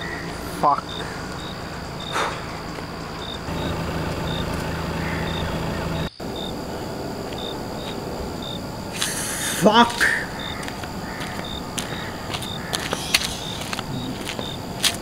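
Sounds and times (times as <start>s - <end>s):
high insect chirps: 0.0s - 15.0s
steady low rumble: 0.4s - 9.6s.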